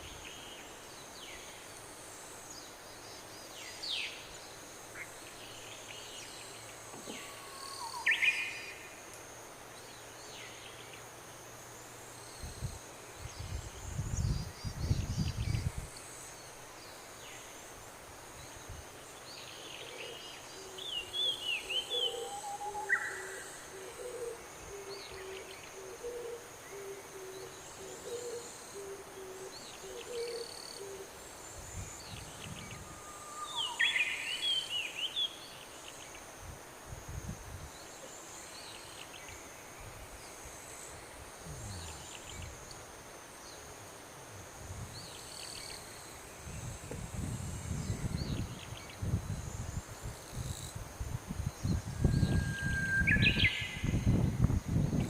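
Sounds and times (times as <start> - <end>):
insects droning: 0.0 - 55.0
bird hooting call: 21.7 - 31.0.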